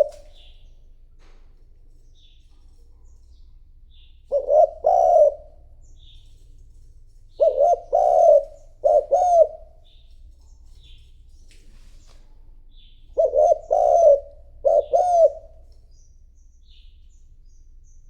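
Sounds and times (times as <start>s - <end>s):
dove cooing: 0.0s - 1.4s, 3.9s - 6.2s, 7.3s - 10.0s, 13.1s - 15.8s.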